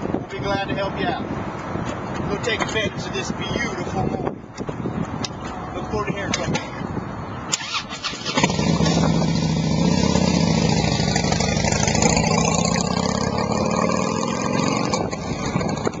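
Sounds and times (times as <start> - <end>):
motorcycle engine running: 8.4 - 16.0.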